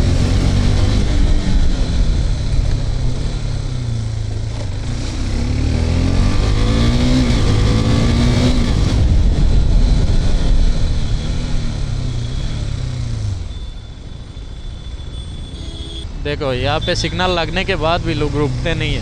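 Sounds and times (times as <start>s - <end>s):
motorcycle engine revving: 0.0s - 13.5s
wind rush on microphone: 7.4s - 11.9s.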